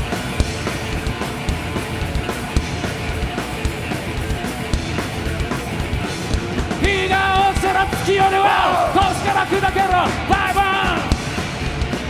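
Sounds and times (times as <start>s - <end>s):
rock band playing instrumental: 0.0s - 12.0s.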